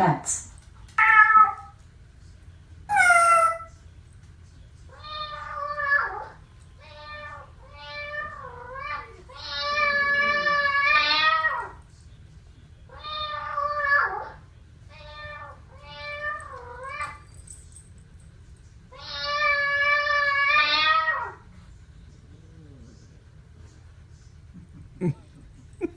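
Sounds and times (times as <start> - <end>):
recorded cat meows: 2.9 - 3.7, 5.0 - 11.8.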